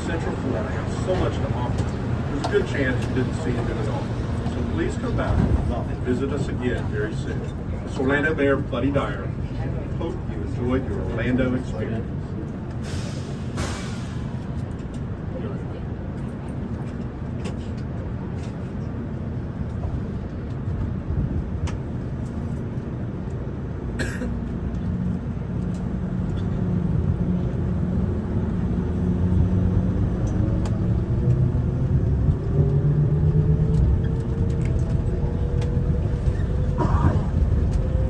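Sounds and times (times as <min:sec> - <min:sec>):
train drive whine: 0:00.0 - 0:38.0
train rumbling on guideway: 0:00.0 - 0:38.0.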